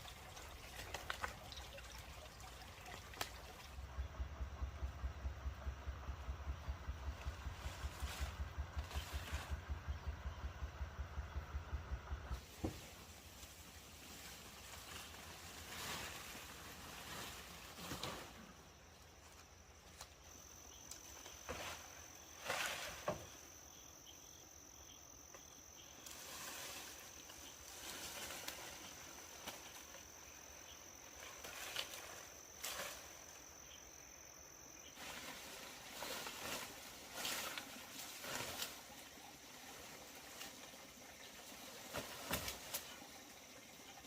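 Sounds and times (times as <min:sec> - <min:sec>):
insect trilling: 0:18.8 - 0:40.4.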